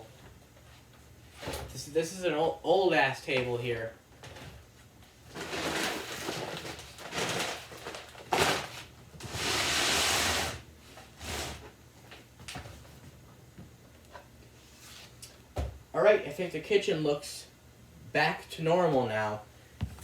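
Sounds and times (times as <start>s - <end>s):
table scraping on floor: 9.2s - 10.6s.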